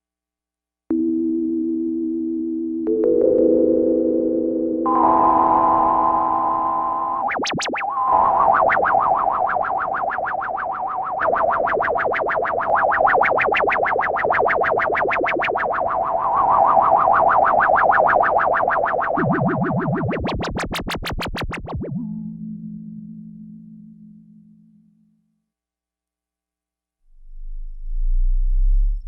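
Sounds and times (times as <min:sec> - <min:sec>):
synthesizer pulsing notes: 0:00.9 - 0:25.0
synthesizer held tone: 0:04.9 - 0:22.1.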